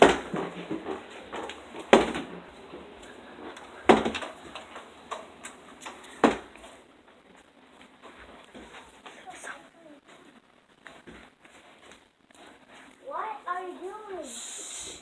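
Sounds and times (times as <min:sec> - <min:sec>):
loud knocks: 0:00.0 - 0:05.3, 0:05.9 - 0:06.7.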